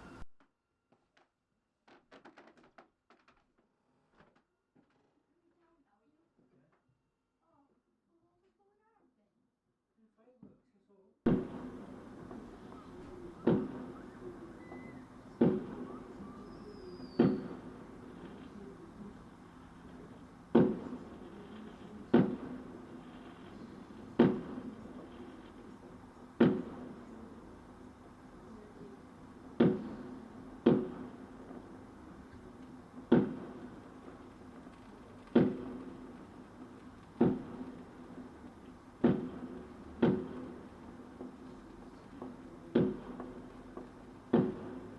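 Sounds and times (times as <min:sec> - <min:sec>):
firework bangs with echo: 0:11.3 - 0:27.9, 0:29.5 - 0:44.9.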